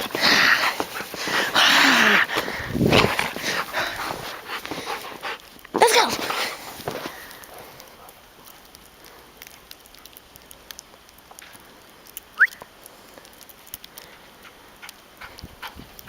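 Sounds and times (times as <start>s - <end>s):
dog steps crunching in snow: 0.0s - 8.0s.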